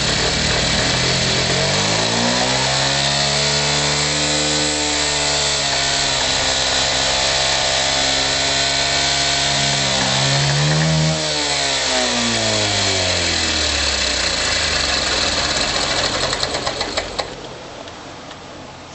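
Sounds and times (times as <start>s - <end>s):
engine pops: 0.0s - 2.6s, 12.2s - 17.6s
motorcycle engine idling and revving: 0.0s - 17.5s.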